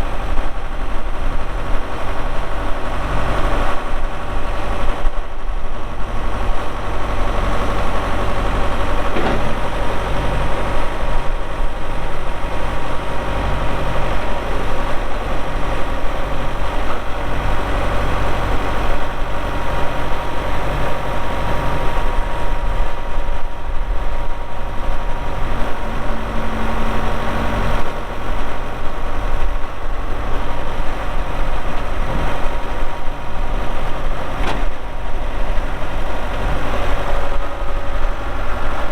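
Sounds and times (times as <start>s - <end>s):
tractor diesel engine running: 0.0s - 38.9s
brief knock: 9.1s - 9.6s.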